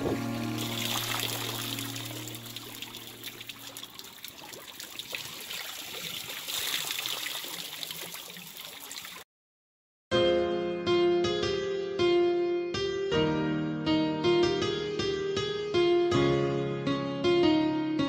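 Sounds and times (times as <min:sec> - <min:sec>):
music: 0:00.0 - 0:03.2, 0:10.1 - 0:18.0
water trickling and splashing: 0:00.0 - 0:09.2.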